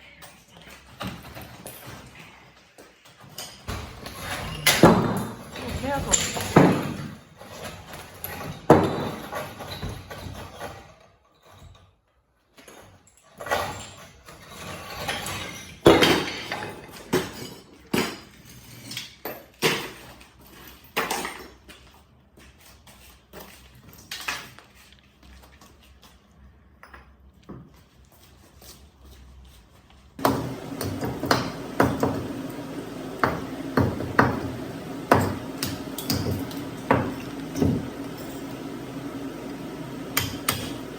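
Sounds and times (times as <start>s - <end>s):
steady low hum: 30.2s - 40.9s.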